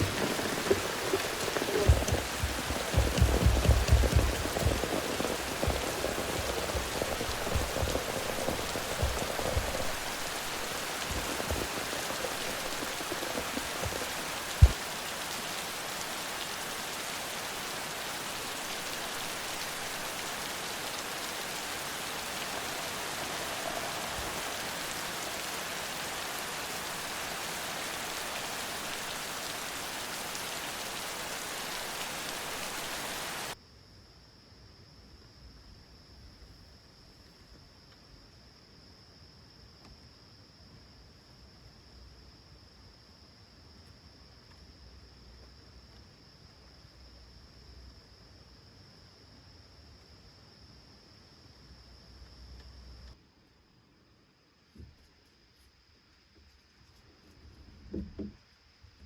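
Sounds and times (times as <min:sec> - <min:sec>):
heavy drops knocking: 0:00.0 - 0:10.1
steady rain falling: 0:00.0 - 0:33.6, 0:42.7 - 0:50.7.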